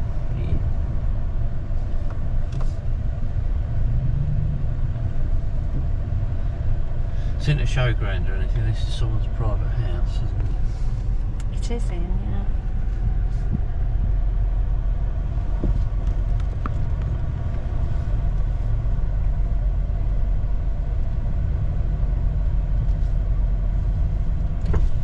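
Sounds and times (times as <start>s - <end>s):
vehicle engine running: 0.0s - 25.0s.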